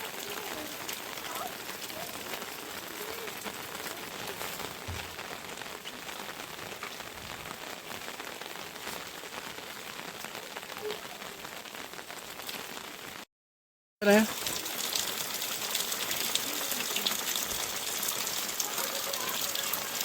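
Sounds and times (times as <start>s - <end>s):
heavy rain falling: 0.0s - 13.2s, 14.0s - 20.0s.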